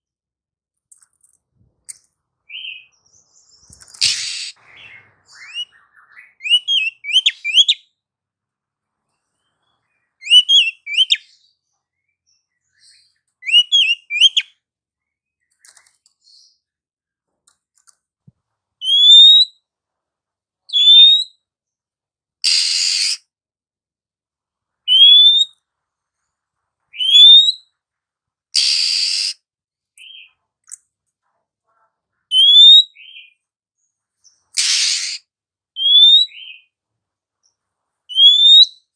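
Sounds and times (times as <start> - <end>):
bird chirping and whistling: 2.5 - 2.9, 4.0 - 7.8, 10.2 - 11.2, 13.4 - 14.5, 18.8 - 19.5, 20.7 - 21.3, 22.5 - 23.2, 24.9 - 25.5, 27.0 - 27.6, 28.6 - 29.4, 32.3 - 33.4, 34.6 - 35.2, 35.8 - 36.7, 38.1 - 38.9
harsh rasping bird call: 4.0 - 7.8, 22.4 - 23.3, 28.5 - 29.4, 34.6 - 36.6.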